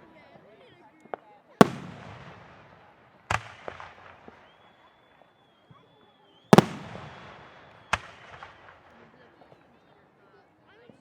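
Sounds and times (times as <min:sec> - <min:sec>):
fireworks bangs: 0:01.6 - 0:04.6, 0:06.5 - 0:09.0.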